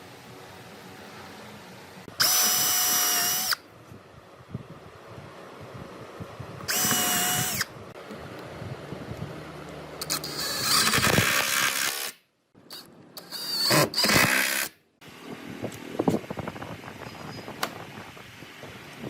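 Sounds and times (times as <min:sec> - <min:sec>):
quiet shop noise: 0:00.0 - 0:15.2.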